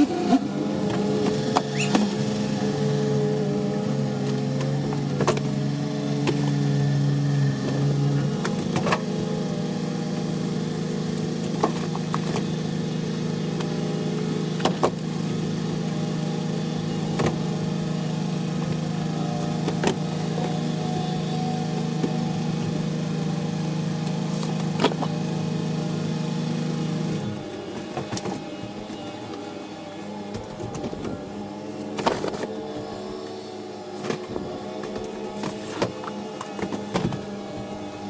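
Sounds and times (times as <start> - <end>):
truck engine running: 3.8 - 23.0, 30.4 - 31.5.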